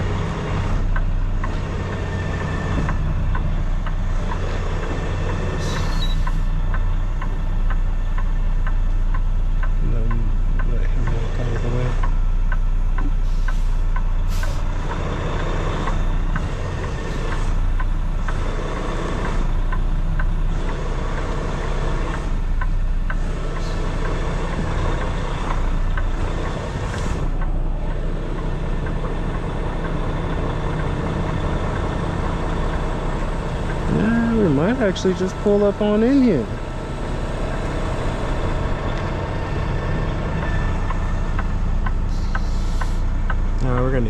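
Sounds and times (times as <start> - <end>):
truck diesel engine running: 0.0 - 44.0
light ticking: 5.3 - 11.2.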